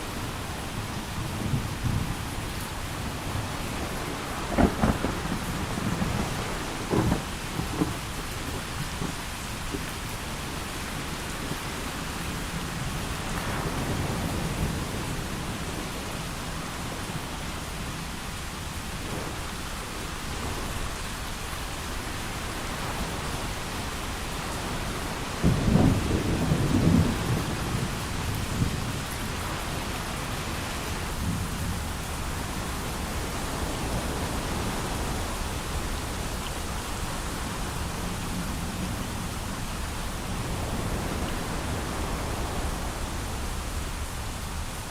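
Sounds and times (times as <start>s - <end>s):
heavy rain: 0.0s - 44.9s
rolling thunder: 0.3s - 11.8s, 25.2s - 35.5s
thunderclap: 1.2s - 10.5s, 25.4s - 29.5s.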